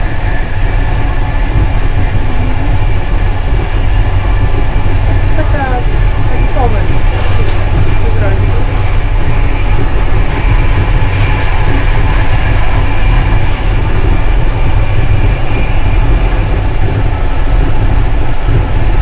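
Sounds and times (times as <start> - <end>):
faint hum: 0.0 - 19.0
train rumbling: 0.0 - 19.0.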